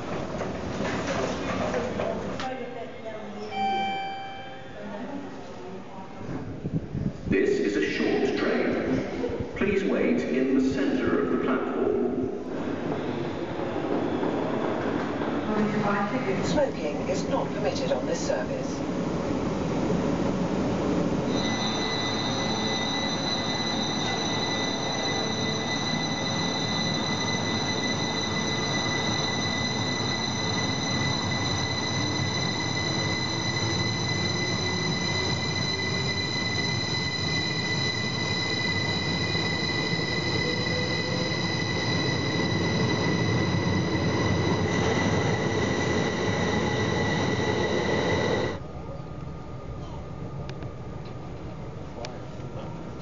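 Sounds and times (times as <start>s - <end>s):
electric train high-pitched whine: 21.2s - 48.6s.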